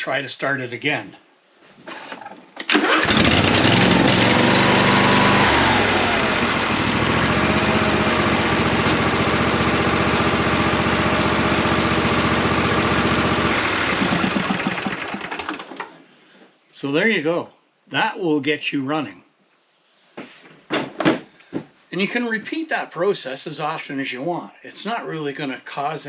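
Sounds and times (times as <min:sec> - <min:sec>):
electric starter cranking engine: 0:02.6 - 0:15.9
lawn tractor engine running: 0:02.7 - 0:15.9.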